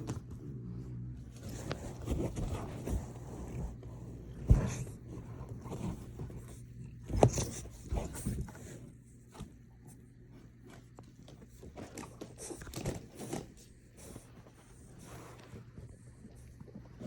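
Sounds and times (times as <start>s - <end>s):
dog scratching and scraping: 1.3s - 8.9s.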